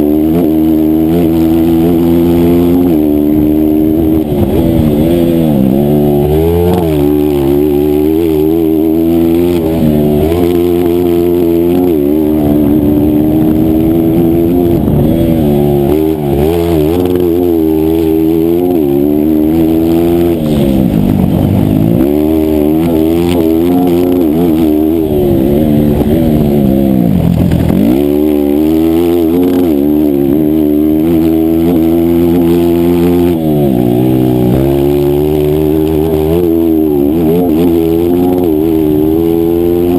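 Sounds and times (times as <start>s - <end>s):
motorcycle engine running hard: 0.0s - 39.9s.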